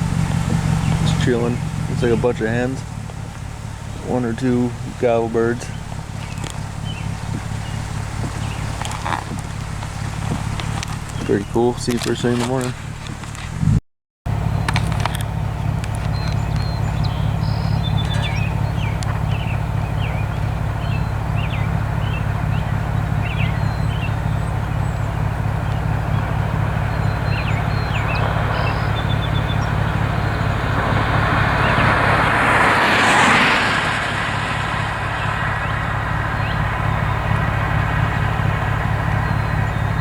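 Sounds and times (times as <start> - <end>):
small birds chirping: 0.0 - 13.5, 14.5 - 40.0
vehicle engine idling: 0.0 - 40.0
vehicle passing by: 15.0 - 40.0.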